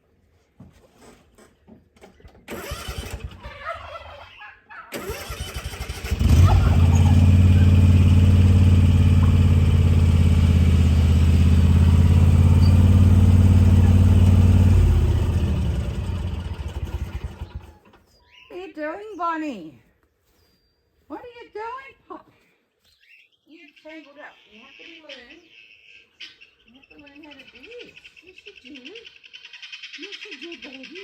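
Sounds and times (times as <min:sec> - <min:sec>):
engine humming: 0:05.0 - 0:18.0.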